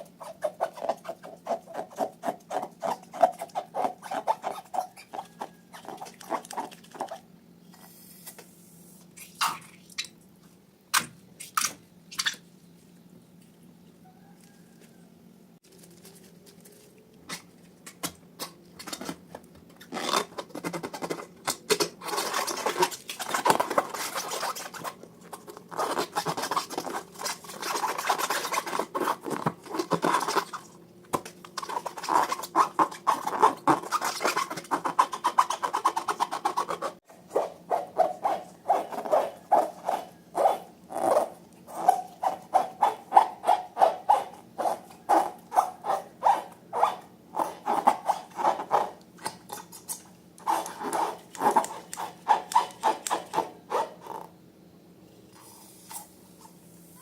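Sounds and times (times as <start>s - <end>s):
quick squeaky strokes: 0.0s - 7.2s, 31.6s - 49.0s, 49.6s - 54.0s
rubbing and scraping rubber: 0.0s - 8.4s, 18.8s - 54.3s.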